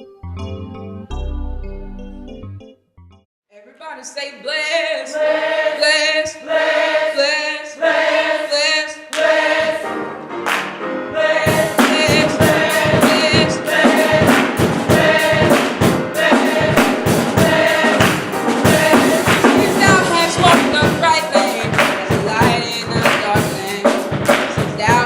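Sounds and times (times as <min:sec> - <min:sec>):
gospel choir singing: 0:04.6 - 0:25.0
band accompaniment: 0:09.6 - 0:25.0
drum kit beat: 0:11.3 - 0:25.0.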